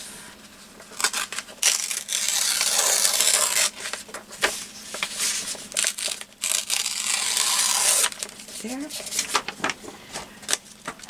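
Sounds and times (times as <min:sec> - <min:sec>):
paper rubbing and rasping: 0:01.0 - 0:09.7.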